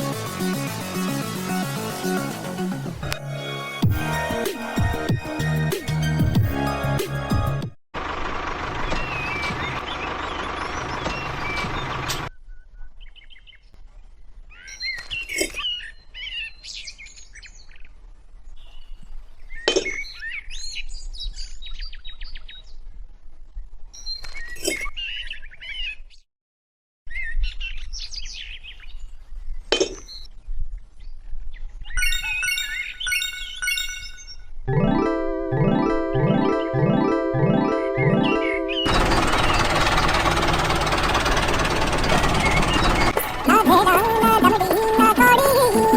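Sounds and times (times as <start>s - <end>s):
birds chirping: 42.0s - 45.9s.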